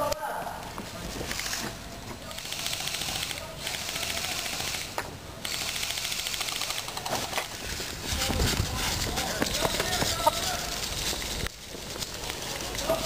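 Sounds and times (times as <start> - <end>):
airsoft gun firing full auto: 2.4 - 7.3.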